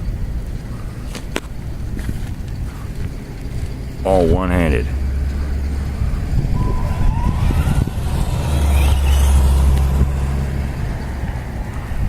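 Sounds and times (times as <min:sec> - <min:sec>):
low rumble: 0:04.8 - 0:12.0
electric motor whining: 0:04.9 - 0:11.2.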